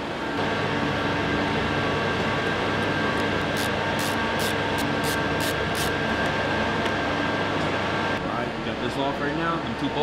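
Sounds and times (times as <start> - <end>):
loud machine hum: 0.0 - 10.0
ratchet wrench rasping: 3.6 - 5.9.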